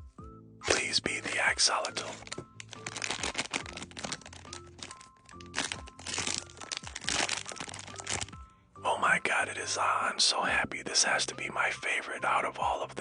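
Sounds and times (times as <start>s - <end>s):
background music: 0.0s - 13.0s
packaging crinkling: 0.7s - 8.4s.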